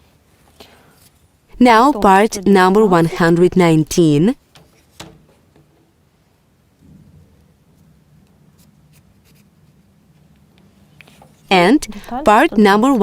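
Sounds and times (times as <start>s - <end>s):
low steady hum: 11.5s - 13.0s.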